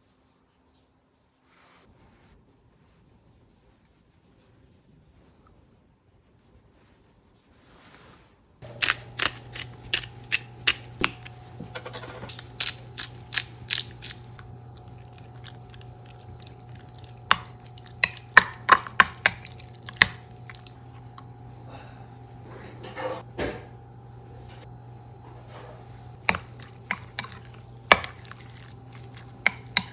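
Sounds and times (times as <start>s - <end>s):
appliance hum: 8.6s - 29.9s.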